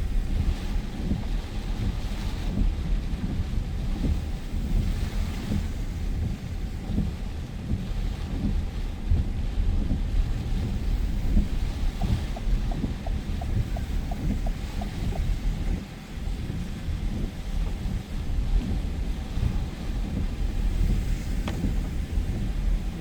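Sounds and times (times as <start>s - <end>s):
wind buffeting microphone: 0.0s - 23.0s
rain hissing: 11.1s - 23.0s.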